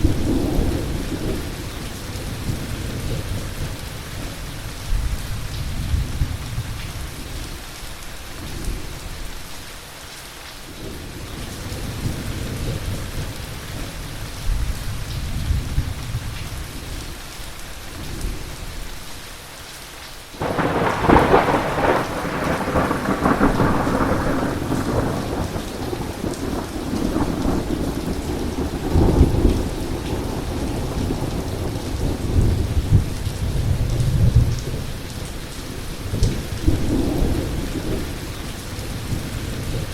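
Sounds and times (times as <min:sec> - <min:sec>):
low rolling thunder: 0:00.0 - 0:07.2, 0:20.4 - 0:39.9
steady rain: 0:00.0 - 0:39.9
loud thunderclap: 0:20.4 - 0:34.7.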